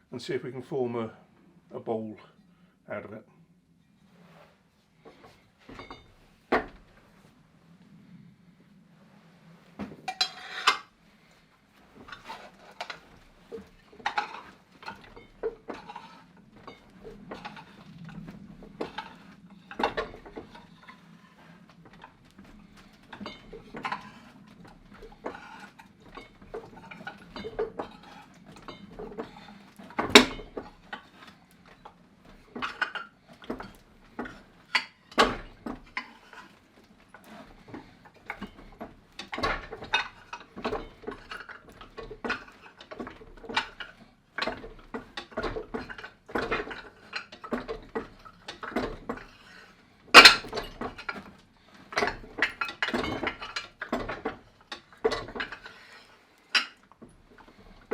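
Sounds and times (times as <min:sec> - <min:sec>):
metal clanks and knocks: 0:05.1 - 0:07.0, 0:09.8 - 0:10.9, 0:11.9 - 0:57.9
loud metal clangs: 0:30.0 - 0:30.7.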